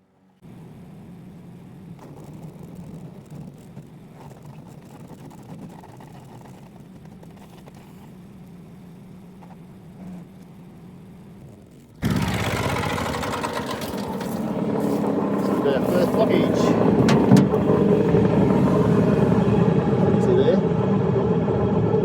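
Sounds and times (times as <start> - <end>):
wood chipper chipping branches: 12.0 - 19.5.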